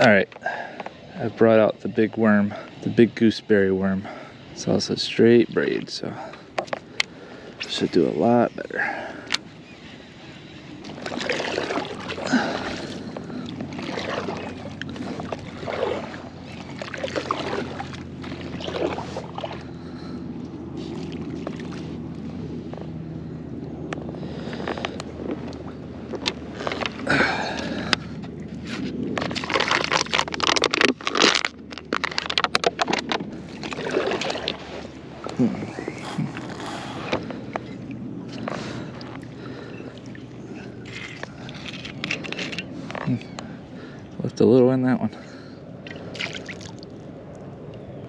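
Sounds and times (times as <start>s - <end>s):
paddle strokes splashing water: 8.7s - 22.8s, 24.2s - 43.2s, 45.8s - 46.9s.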